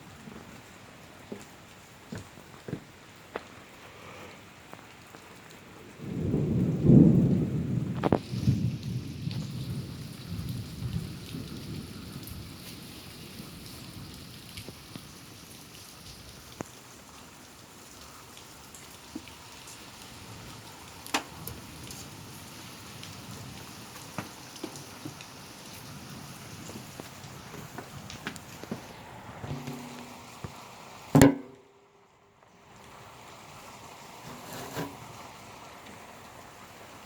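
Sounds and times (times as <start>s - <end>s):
steady rain: 0.0s - 37.0s
raindrops tapping: 4.6s - 31.7s
thunder rumble: 6.0s - 12.5s.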